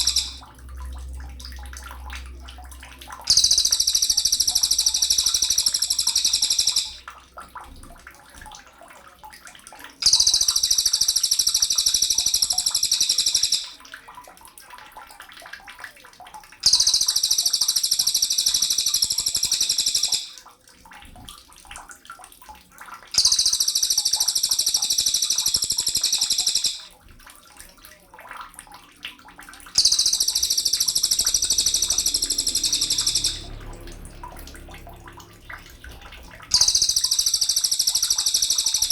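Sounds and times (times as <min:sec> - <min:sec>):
songbird high twittering: 0:00.0 - 0:00.4.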